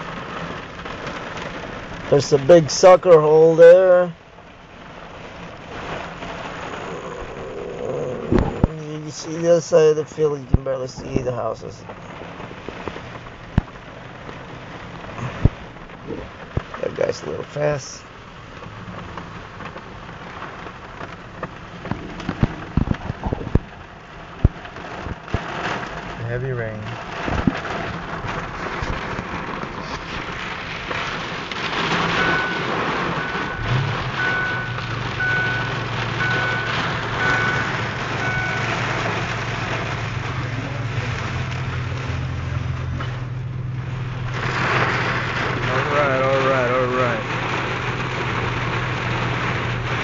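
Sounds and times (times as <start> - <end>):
heavy rain on car roof: 0.0 - 50.0
engine hum: 3.3 - 9.0, 18.1 - 50.0
short electronic beep: 32.2 - 38.8.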